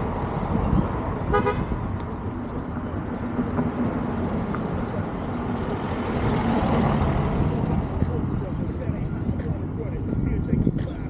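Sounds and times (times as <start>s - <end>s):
traffic rumble: 0.0s - 11.0s
vehicle horn toot: 1.3s - 1.8s.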